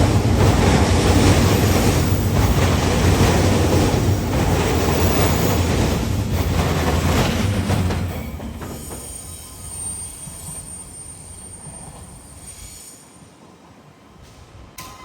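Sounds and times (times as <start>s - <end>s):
train rumbling past: 0.0s - 15.0s
wheels squealing on rails: 4.0s - 13.4s.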